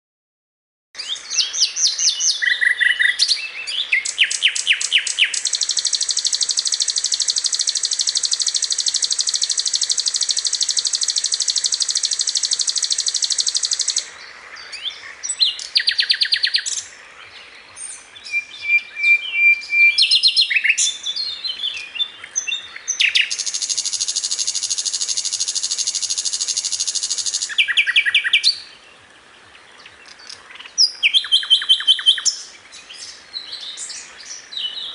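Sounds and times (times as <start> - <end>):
flycatcher chirping: 1.2 - 16.9, 18.2 - 28.7, 30.0 - 32.5
rapid high bird trills: 4.0 - 14.1, 22.8 - 28.7.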